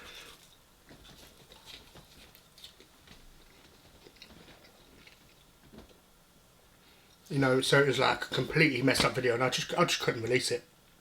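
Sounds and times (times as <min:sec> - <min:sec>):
chewing food: 0:00.2 - 0:05.9
mouth clicks and crunches: 0:00.2 - 0:05.9.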